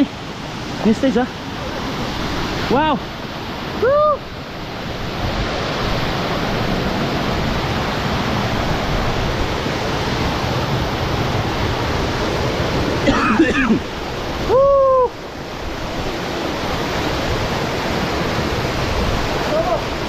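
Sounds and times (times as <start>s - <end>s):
waterfall rushing: 0.0s - 20.0s
person exclaiming: 3.8s - 4.2s, 14.4s - 15.1s, 19.4s - 19.9s.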